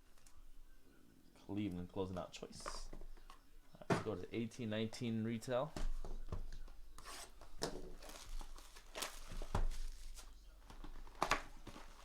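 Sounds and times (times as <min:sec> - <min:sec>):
card packaging tearing and crinkling: 0:07.0 - 0:10.4.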